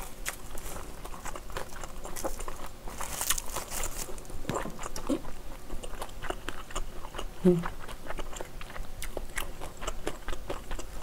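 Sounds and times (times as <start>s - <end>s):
chewing with wet mouth clicks: 0.2s - 3.4s, 4.5s - 11.0s
dry seaweed sheet crinkling: 1.6s - 4.3s.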